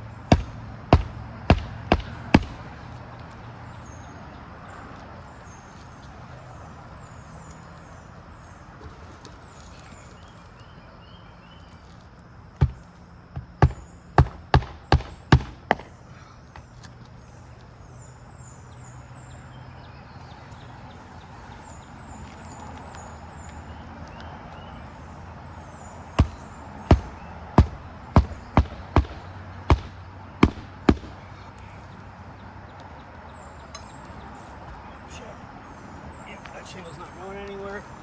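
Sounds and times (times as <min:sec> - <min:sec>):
hatchet hammering nails into shingles: 0:00.2 - 0:03.3, 0:13.4 - 0:16.8, 0:26.2 - 0:31.6.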